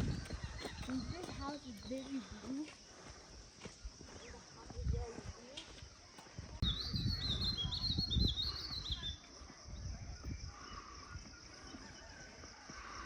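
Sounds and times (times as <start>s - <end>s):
songbird warbling chirps: 0.0s - 2.6s, 6.6s - 12.1s.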